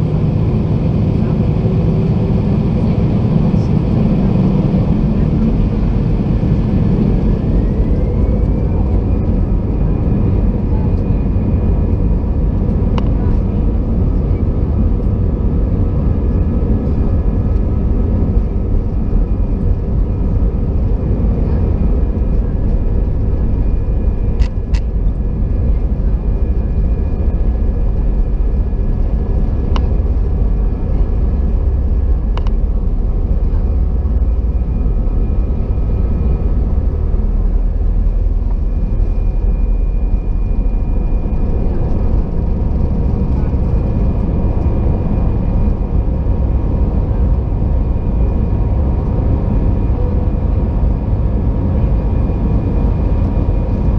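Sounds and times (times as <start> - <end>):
jet engine drone in cabin: 0.0 - 53.9.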